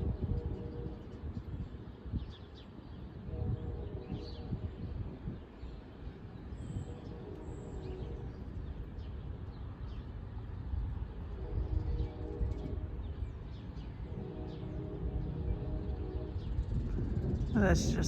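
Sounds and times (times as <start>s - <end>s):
distant train hum: 0.0s - 18.0s
wind rumbling on microphone: 0.0s - 18.0s
birds chirping: 11.4s - 18.0s.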